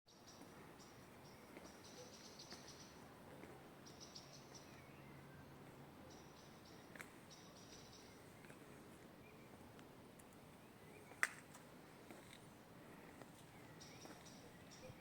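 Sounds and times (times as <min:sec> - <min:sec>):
faint bird chirps: 0:00.1 - 0:03.0, 0:13.4 - 0:15.0.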